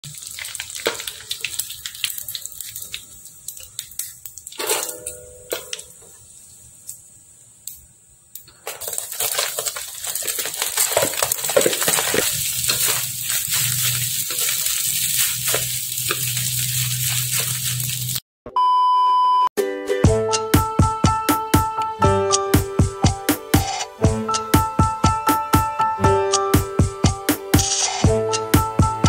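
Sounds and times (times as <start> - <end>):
rice sizzling in a wok: 0.0 - 18.2
spatula scraping and tapping wok: 8.6 - 18.2
electronic test tone beep: 18.5 - 19.5.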